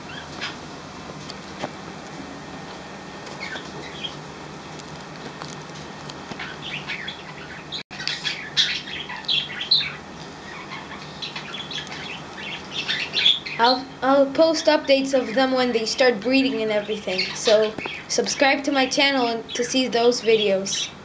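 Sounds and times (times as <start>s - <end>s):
budgerigars chirping and chattering: 3.4s - 4.2s, 6.4s - 13.8s, 16.8s - 18.2s, 19.4s - 21.0s.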